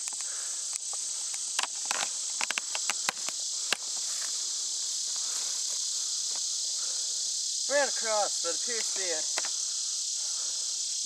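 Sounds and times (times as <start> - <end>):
sharp clicks and crunches: 0.0 - 4.4
insect chorus: 0.0 - 11.0.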